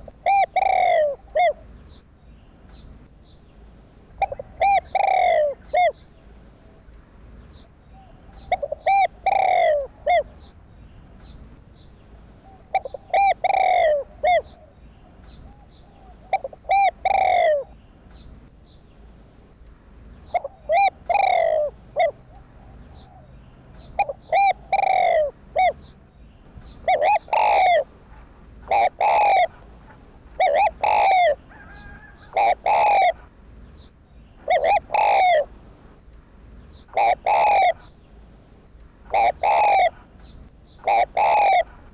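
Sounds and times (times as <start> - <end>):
dove cooing: 0.0 - 1.7, 4.2 - 6.1, 8.0 - 10.5, 12.4 - 17.8, 20.2 - 25.9, 26.6 - 33.3, 34.4 - 35.6, 36.9 - 37.9, 39.1 - 40.1, 40.8 - 41.9.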